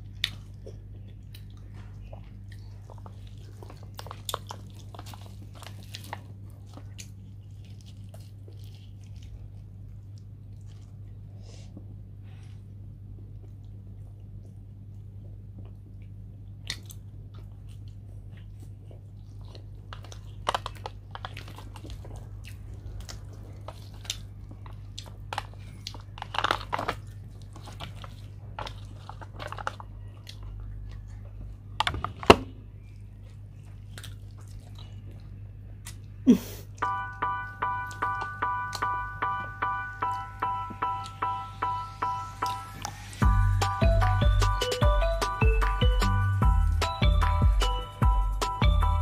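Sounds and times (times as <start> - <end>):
chewing and crunching food: 0.0 - 38.9
low hum: 36.8 - 49.0.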